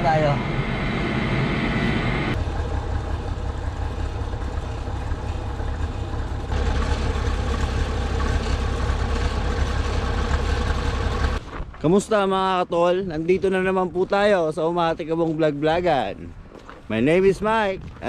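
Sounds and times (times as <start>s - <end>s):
faint hum: 0.0s - 9.9s
low mechanical rumble: 0.0s - 11.4s.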